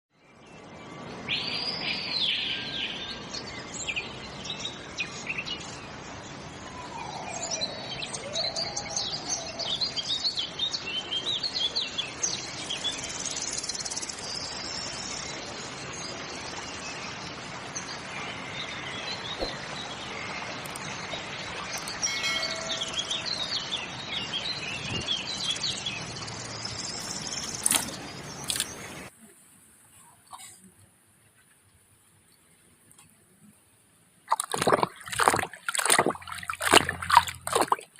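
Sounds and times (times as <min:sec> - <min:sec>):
birds chirping and singing: 0:20.8 - 0:29.0.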